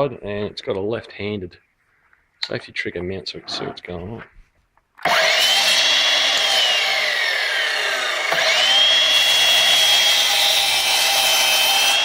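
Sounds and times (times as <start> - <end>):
mitre saw cutting wood: 5.0 - 12.0.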